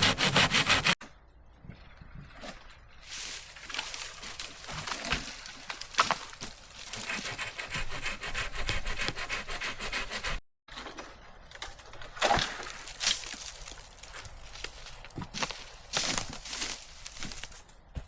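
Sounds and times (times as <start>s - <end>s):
hand saw cutting wood: 0.0s - 1.0s, 5.0s - 10.4s.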